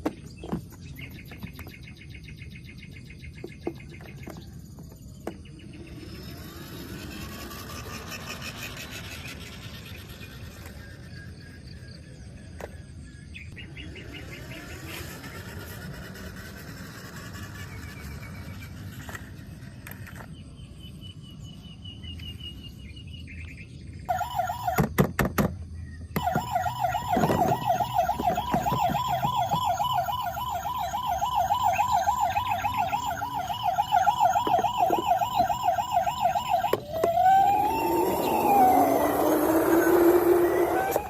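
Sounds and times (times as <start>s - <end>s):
toy siren warbling: 5.8s - 11.4s, 13.8s - 18.6s, 24.1s - 24.9s, 26.2s - 41.0s.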